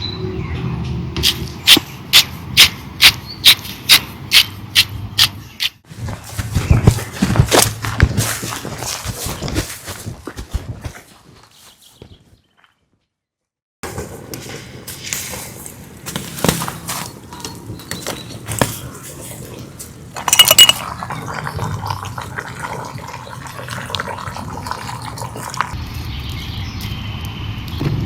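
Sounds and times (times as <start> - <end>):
cookware and utensils clinking: 17.2 - 25.8.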